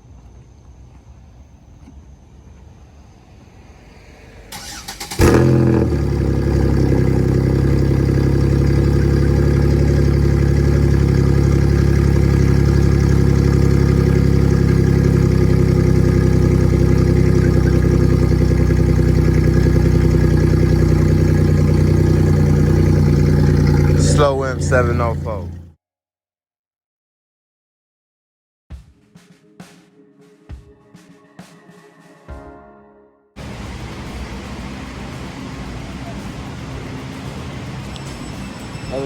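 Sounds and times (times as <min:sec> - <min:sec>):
car engine cranking: 0:04.5 - 0:25.7
car engine idling loud: 0:04.6 - 0:25.7, 0:33.4 - 0:39.0.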